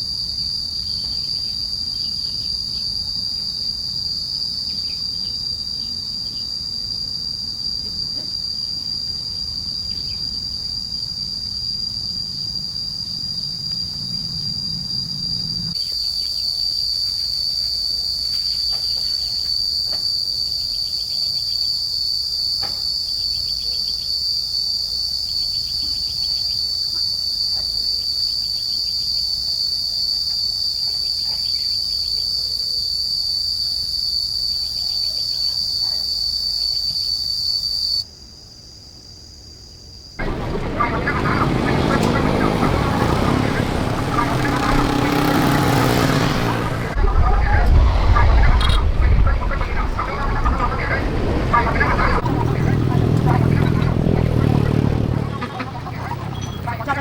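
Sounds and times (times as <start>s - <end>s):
insect chorus drone: 0.0s - 57.0s
low background rumble: 40.2s - 57.0s.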